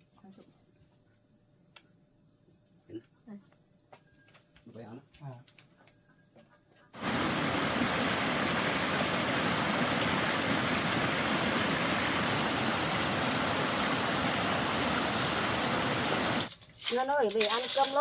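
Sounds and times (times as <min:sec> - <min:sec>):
stream water rushing: 0:07.0 - 0:16.5.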